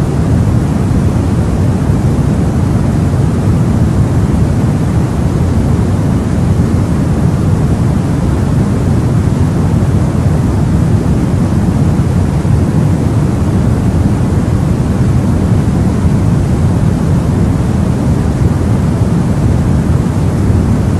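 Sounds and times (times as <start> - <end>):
low white noise rumble: 0.0 - 20.9.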